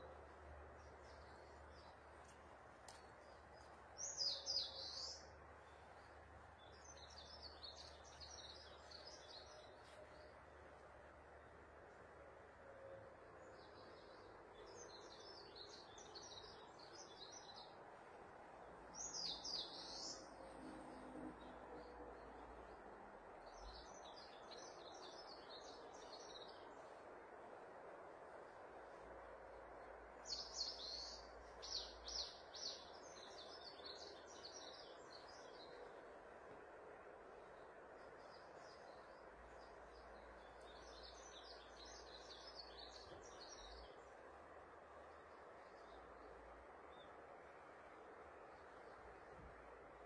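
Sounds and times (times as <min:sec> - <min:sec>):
birds chirping: 0:00.0 - 0:11.7, 0:12.6 - 0:27.0, 0:28.5 - 0:50.0
faint background hiss: 0:00.0 - 0:50.0
songbird singing: 0:00.0 - 0:50.0
steady background noise: 0:00.0 - 0:50.0.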